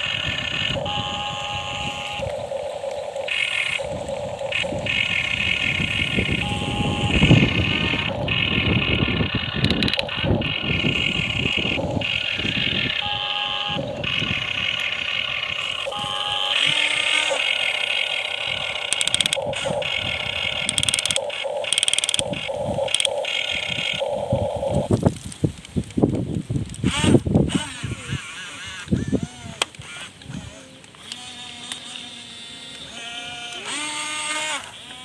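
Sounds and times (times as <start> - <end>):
high whine: 0.0 - 25.4
excavator engine rumbling: 0.0 - 26.0.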